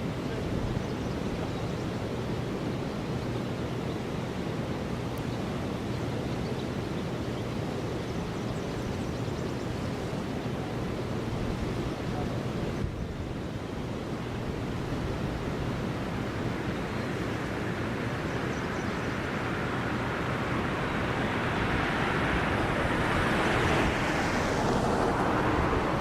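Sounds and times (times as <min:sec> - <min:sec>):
wind buffeting microphone: 0:08.1 - 0:17.0, 0:17.7 - 0:26.0
vehicle tyre noise passing: 0:19.2 - 0:26.0.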